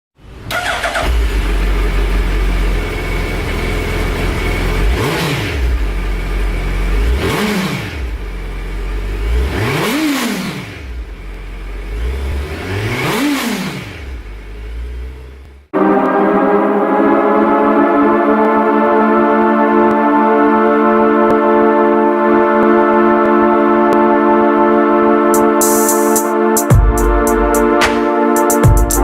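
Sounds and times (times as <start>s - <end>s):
motorcycle engine idling and revving: 0.2s - 15.7s.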